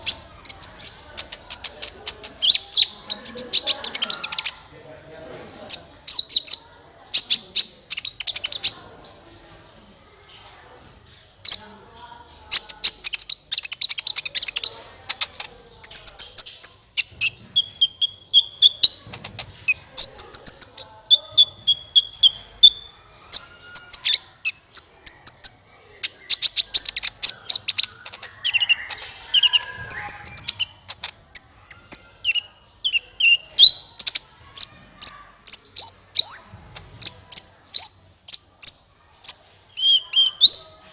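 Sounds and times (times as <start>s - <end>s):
sunbird chirps and trills: 19.6s - 40.9s.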